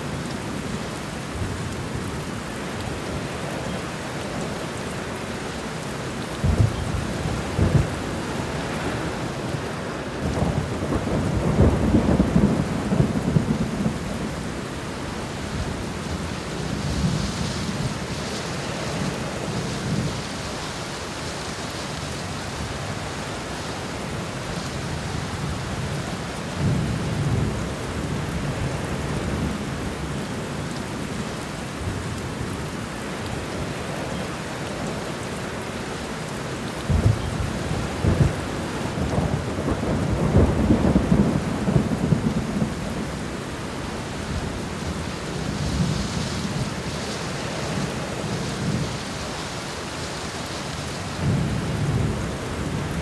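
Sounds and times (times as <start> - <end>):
steady rain: 0.0 - 53.0
rolling thunder: 6.4 - 9.6, 10.2 - 14.6, 36.9 - 43.3.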